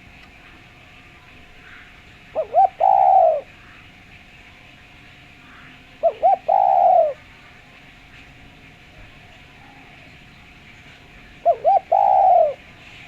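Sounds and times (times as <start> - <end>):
dove cooing: 1.6 - 3.8, 6.0 - 7.4, 11.2 - 13.0.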